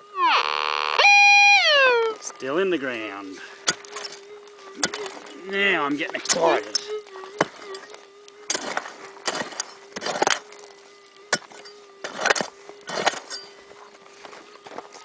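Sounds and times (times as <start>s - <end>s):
metal detector hum: 0.0s - 15.0s
pick digging into ground: 3.6s - 5.3s, 6.2s - 13.8s.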